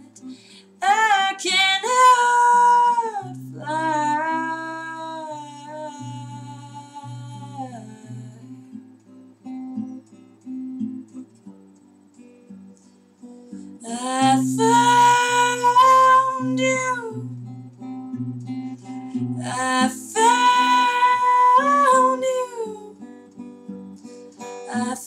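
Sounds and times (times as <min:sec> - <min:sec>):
woman singing: 0:00.0 - 0:08.8, 0:13.8 - 0:17.5, 0:19.1 - 0:23.2, 0:24.5 - 0:25.0
acoustic guitar: 0:00.0 - 0:25.0.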